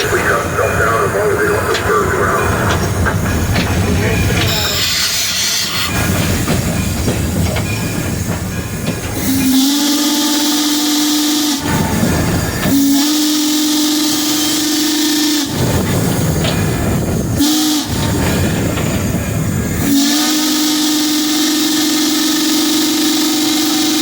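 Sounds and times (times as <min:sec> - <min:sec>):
steam locomotive rumble and clatter: 0:00.0 - 0:24.0
steam whistle blasts: 0:09.2 - 0:15.6, 0:17.4 - 0:18.0, 0:19.8 - 0:24.0.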